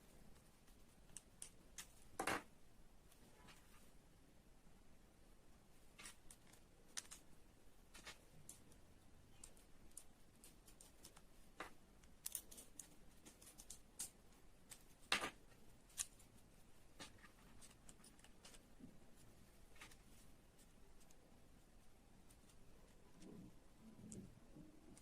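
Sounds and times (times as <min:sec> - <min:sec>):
small parts clicking and tapping: 0:01.0 - 0:02.5, 0:05.9 - 0:16.3.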